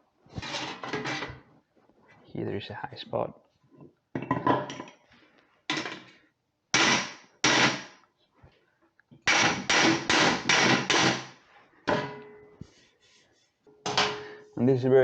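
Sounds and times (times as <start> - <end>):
hammer striking sheet metal: 9.3 - 11.3.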